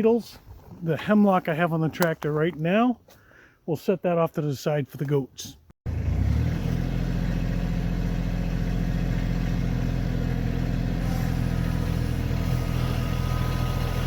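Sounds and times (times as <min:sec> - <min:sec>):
tractor diesel engine running: 0:05.9 - 0:14.0.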